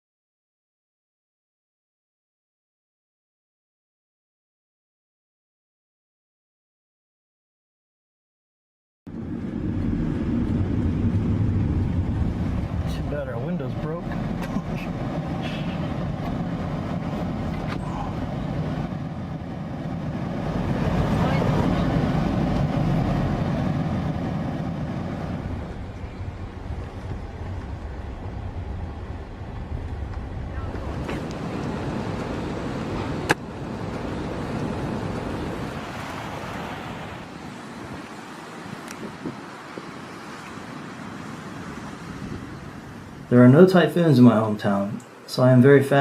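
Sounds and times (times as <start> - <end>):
strong storm wind rumble: 9.1 - 44.6.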